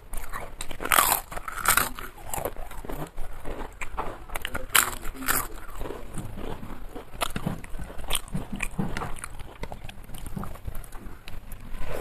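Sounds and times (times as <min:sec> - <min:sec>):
person chewing food: 0:00.0 - 0:12.0
wet mouth sounds: 0:00.0 - 0:12.0.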